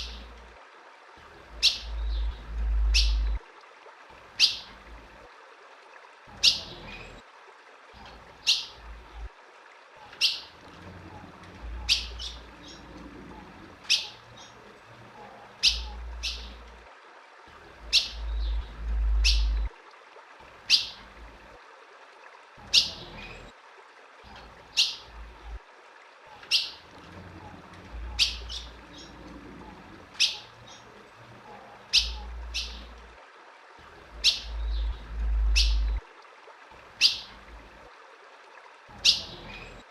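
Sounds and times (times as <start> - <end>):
bird chip calls: 1.6 - 3.4, 8.0 - 8.8, 13.9 - 14.6, 15.6 - 16.6, 17.9 - 19.7, 26.4 - 26.8, 28.0 - 29.2, 30.2 - 30.9, 31.9 - 33.0, 34.2 - 36.0, 37.0 - 37.4, 39.0 - 39.8
low rumble: 1.9 - 3.4, 18.2 - 19.7, 34.5 - 36.0.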